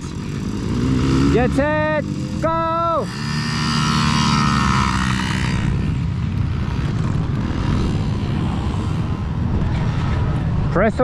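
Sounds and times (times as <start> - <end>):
dirt bike engines revving high: 0.0 - 11.0
steady low engine noise: 0.0 - 11.0.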